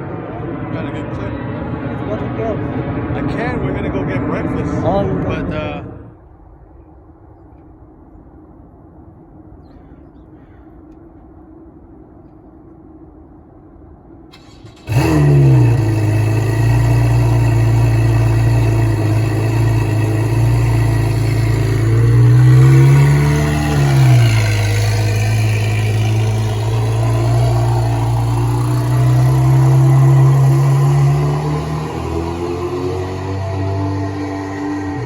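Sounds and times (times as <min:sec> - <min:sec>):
car engine starting and idling: 0:14.3 - 0:35.0.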